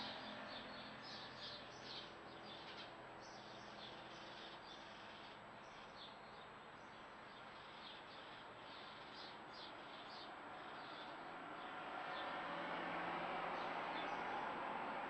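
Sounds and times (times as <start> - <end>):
small birds chirping: 0.0 - 12.3.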